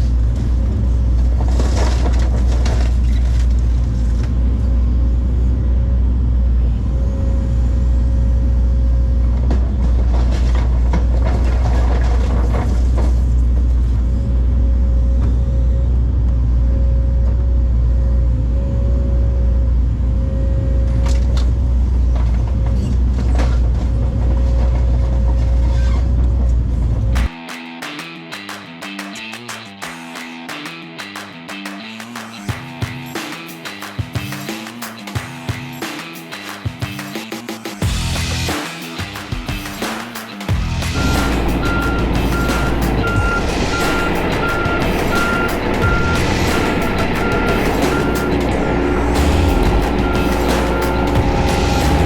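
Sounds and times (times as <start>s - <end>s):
diesel machinery running: 0.0s - 27.4s, 40.5s - 52.0s
debris crashing and clattering: 1.2s - 3.6s, 9.6s - 13.5s
machinery whine: 40.6s - 52.0s.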